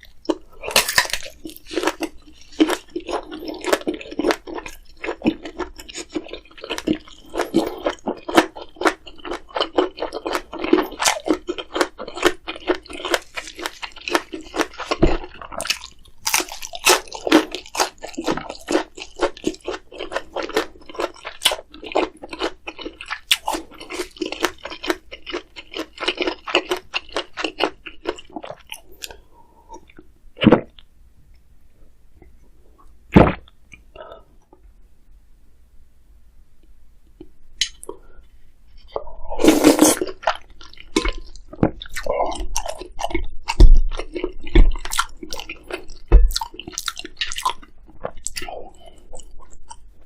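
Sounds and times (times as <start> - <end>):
chewing and biting food: 0.0 - 29.2, 39.4 - 50.0.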